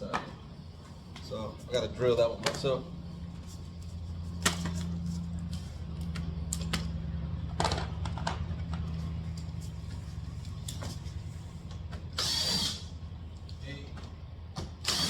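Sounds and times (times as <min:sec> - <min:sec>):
power drill running: 0:12.1 - 0:13.0, 0:14.8 - 0:15.0.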